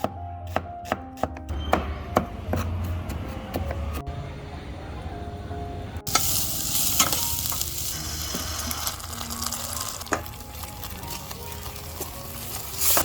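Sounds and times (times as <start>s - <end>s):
food sizzling in a pan: 6.1s - 13.0s.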